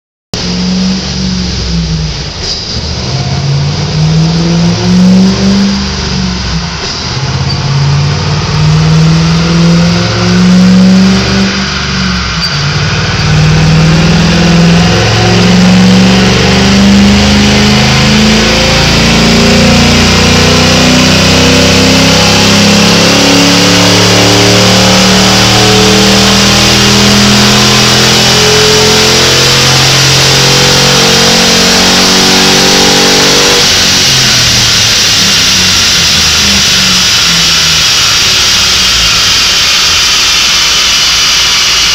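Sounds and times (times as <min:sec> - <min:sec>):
car engine pulling hard: 0:00.4 - 0:41.9
tyre and roller whine: 0:00.4 - 0:41.9.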